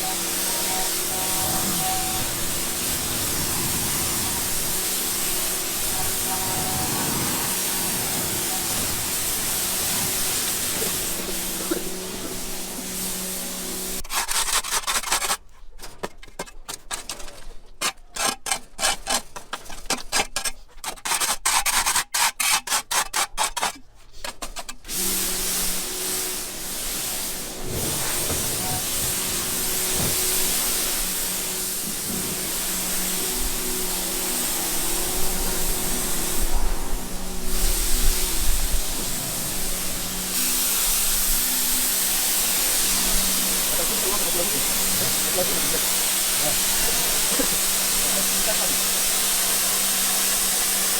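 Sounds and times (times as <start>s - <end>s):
pressure washer spraying: 0.0s - 14.0s, 24.9s - 50.9s
scrubbing strokes: 0.0s - 14.1s, 25.0s - 50.8s.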